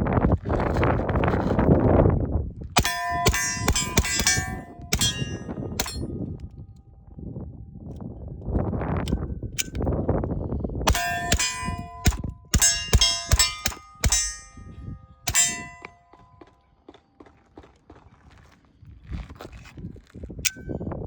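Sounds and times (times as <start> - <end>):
steel targets clanging and ringing: 2.8 - 6.2, 10.9 - 16.3.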